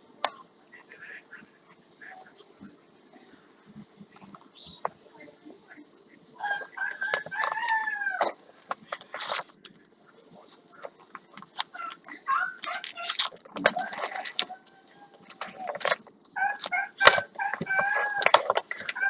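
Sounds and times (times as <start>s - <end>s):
paper crinkling and rustling: 6.7s - 19.0s.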